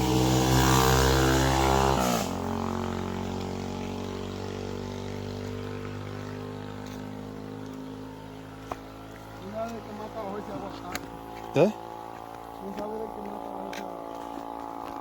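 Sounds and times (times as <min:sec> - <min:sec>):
vehicle engine passing by: 0:00.0 - 0:15.0.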